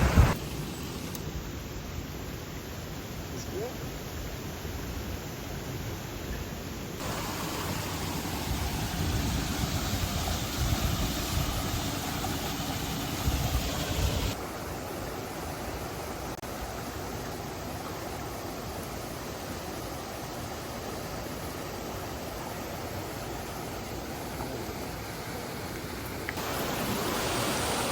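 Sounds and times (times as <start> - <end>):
flowing water rushing: 0.0 - 1.4, 7.0 - 27.9.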